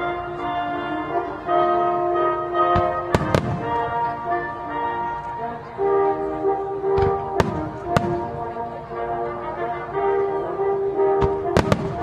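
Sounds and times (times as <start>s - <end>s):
music with long held notes: 0.0s - 12.0s
fireworks bursting with sharp bangs: 2.7s - 4.1s, 6.9s - 8.4s, 11.2s - 12.0s.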